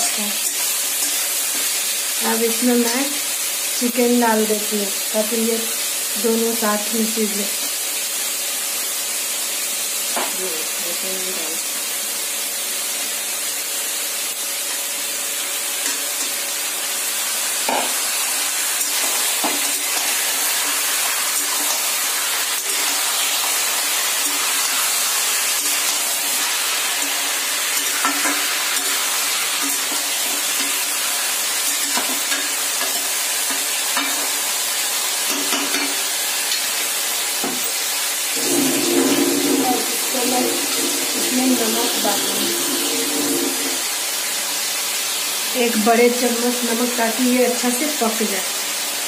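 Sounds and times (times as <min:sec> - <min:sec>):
chicken sizzling in hot oil: 0:00.0 - 0:49.0
metal spatula scraping a pan: 0:38.4 - 0:43.8.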